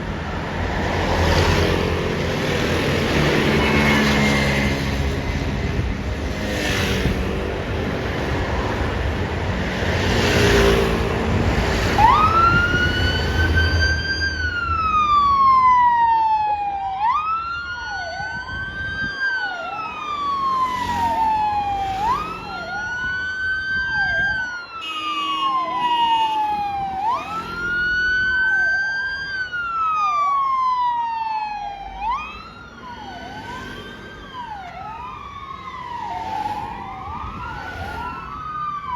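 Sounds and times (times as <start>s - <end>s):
engine and road noise: 0.0s - 38.9s
fire truck siren wailing: 10.3s - 38.9s.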